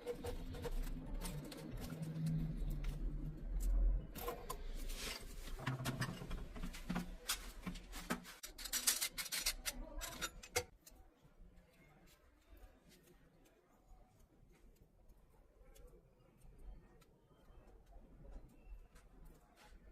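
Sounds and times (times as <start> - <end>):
plastic pipe clicks and scrapes: 0.0 - 11.0.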